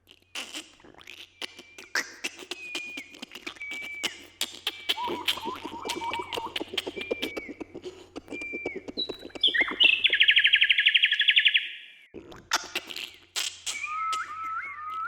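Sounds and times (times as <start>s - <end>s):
birds chirping: 0.1s - 15.0s
rapid ticking: 1.0s - 10.4s.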